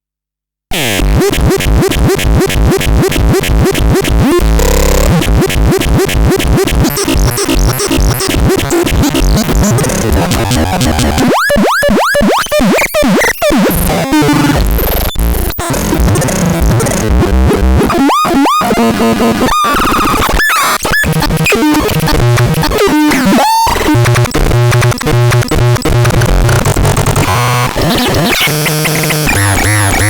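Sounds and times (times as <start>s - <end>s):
harsh chaotic synthesizer: 0.7s - 30.0s.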